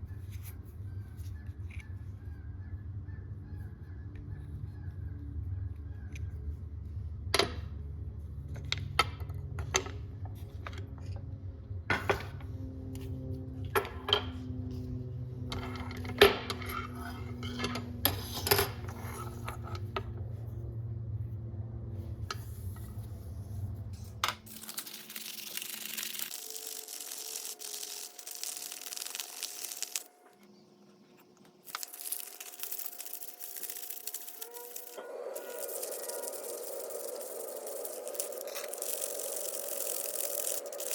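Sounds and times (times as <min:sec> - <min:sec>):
scratchy scrubbing hiss: 0:24.5 - 0:30.1, 0:31.7 - 0:40.9
metal parts clinking on hard surface: 0:31.7 - 0:40.9.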